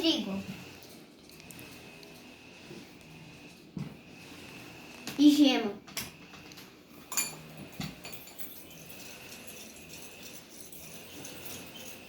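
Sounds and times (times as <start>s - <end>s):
kitchenware knocking and clinking: 7.0s - 9.0s.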